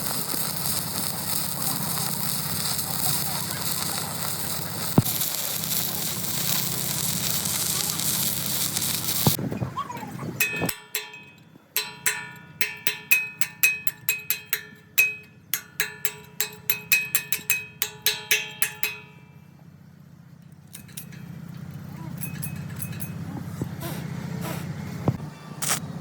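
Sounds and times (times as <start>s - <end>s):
crackling hiss: 0.0s - 9.4s, 25.6s - 25.8s
hammer striking steel: 10.4s - 19.5s, 20.7s - 23.2s.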